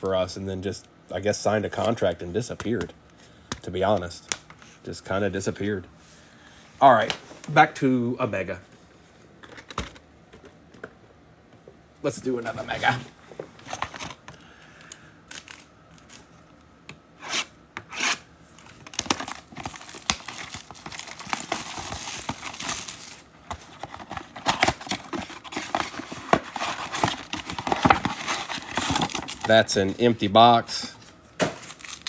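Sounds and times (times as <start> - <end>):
plastic wrap and cardboard tearing: 17.2 - 29.8, 31.4 - 32.0.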